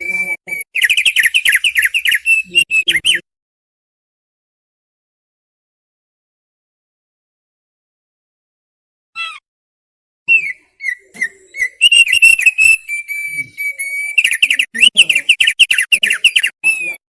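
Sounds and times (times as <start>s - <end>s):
bird singing whistled notes: 0.0s - 3.2s, 10.3s - 17.0s.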